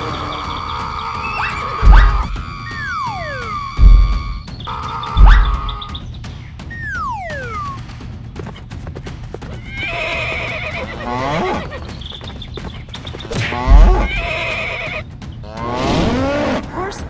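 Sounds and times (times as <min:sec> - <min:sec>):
hooves clip-clopping: 0:00.0 - 0:15.8
heavy low thud: 0:01.8 - 0:02.4, 0:03.8 - 0:04.4, 0:05.2 - 0:05.8, 0:13.6 - 0:14.1
horse neighing: 0:09.6 - 0:11.8, 0:13.4 - 0:15.0.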